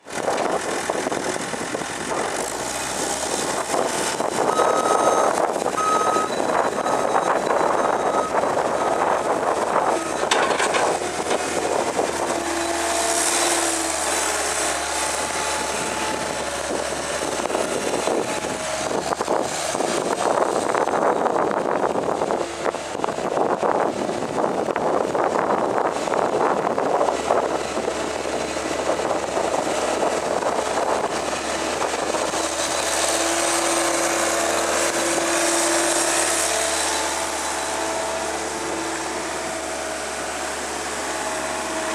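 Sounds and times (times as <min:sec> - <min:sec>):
diesel engine running: 0:00.0 - 0:41.9
backup alarm beeping: 0:04.5 - 0:08.5.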